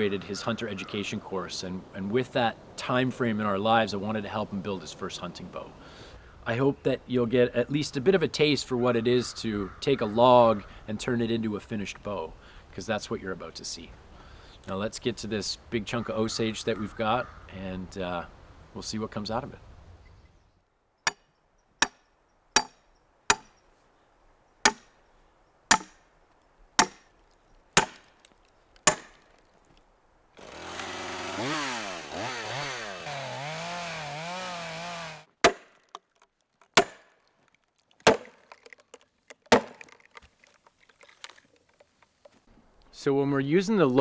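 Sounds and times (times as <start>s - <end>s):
sharp blows on a log: 22.6s - 23.5s, 24.7s - 24.9s, 25.7s - 26.0s, 26.8s - 27.1s, 27.8s - 28.1s, 28.9s - 29.2s, 30.7s - 35.8s, 36.8s - 37.1s, 38.1s - 38.4s, 39.5s - 39.8s
chainsaw revving: 30.4s - 35.3s.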